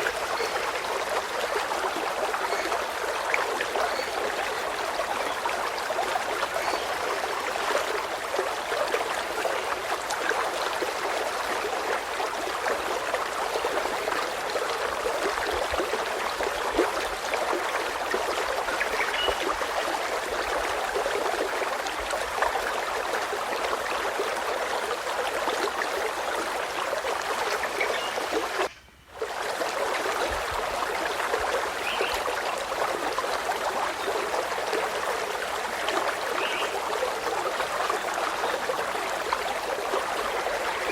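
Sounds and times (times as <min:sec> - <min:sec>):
stream babbling: 0:00.0 - 0:40.9.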